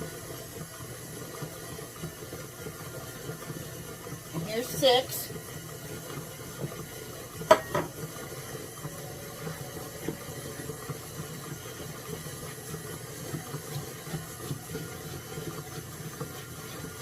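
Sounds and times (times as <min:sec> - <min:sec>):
whisk scraping dough in bowl: 0:08.0 - 0:17.0.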